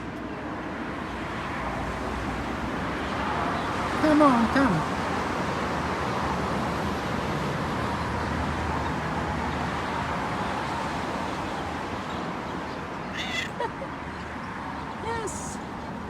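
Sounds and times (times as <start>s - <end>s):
outdoor background noise: 0.0s - 16.0s
high-pitched animal call: 13.1s - 13.8s.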